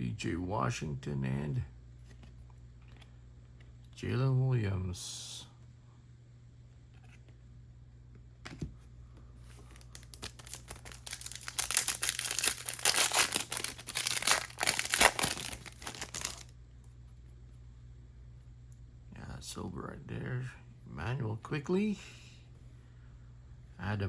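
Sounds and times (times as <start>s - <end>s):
foil wrapper crinkling: 9.6s - 16.5s.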